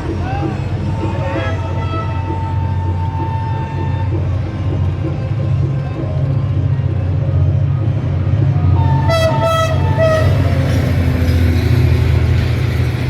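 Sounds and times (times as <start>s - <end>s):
diesel locomotive engine drone: 0.0s - 13.0s
wheel and carriage rush: 0.0s - 13.0s
two-note train horn blast: 1.1s - 4.8s, 8.8s - 10.7s.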